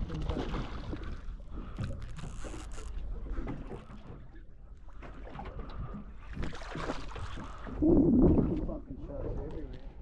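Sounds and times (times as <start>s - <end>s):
water moving around boat: 0.0s - 10.0s
wind buffeting microphone: 7.6s - 9.6s.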